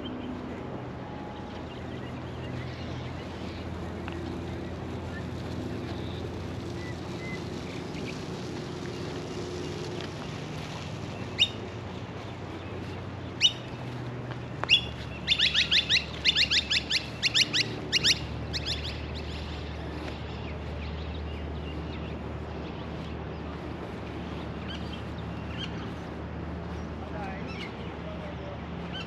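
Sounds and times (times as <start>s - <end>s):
bird calling: 1.1s - 14.0s, 14.6s - 20.8s.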